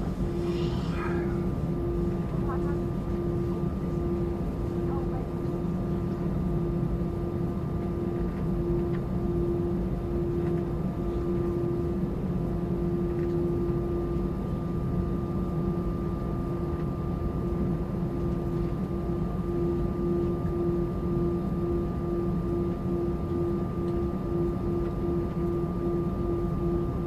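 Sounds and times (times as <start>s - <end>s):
high steady whine: 0.0s - 5.0s
airliner cabin hum: 0.0s - 27.0s.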